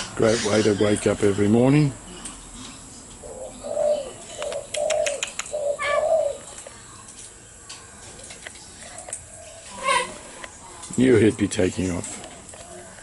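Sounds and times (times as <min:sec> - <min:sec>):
sharp clicks: 0:04.4 - 0:05.6.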